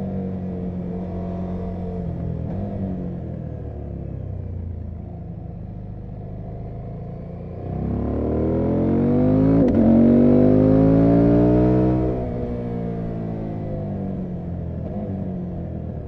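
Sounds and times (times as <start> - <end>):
motorcycle engine revving: 7.5 - 15.8.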